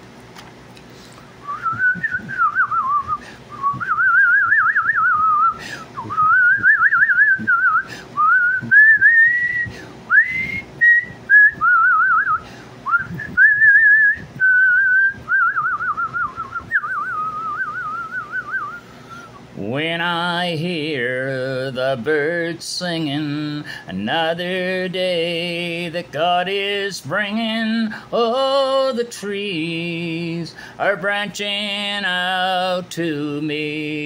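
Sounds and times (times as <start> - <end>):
man whistling a melody: 1.4 - 19.4.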